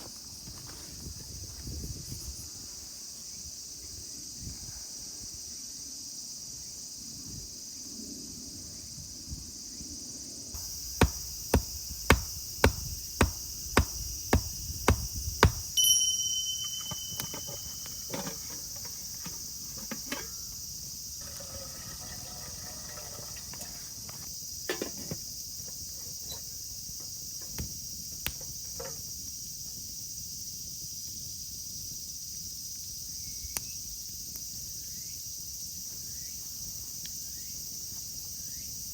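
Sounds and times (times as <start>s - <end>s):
insects chirring: 0.0s - 38.9s
sharp knocks: 10.6s - 15.8s.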